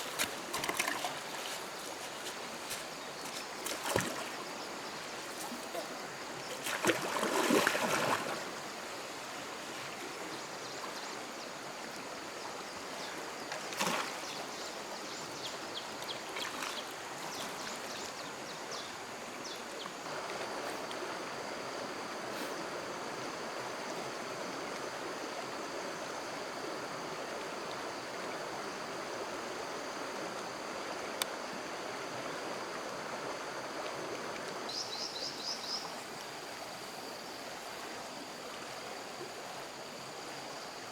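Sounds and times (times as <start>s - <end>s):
water splashing: 0.0s - 8.6s
stream water flowing: 0.0s - 40.9s.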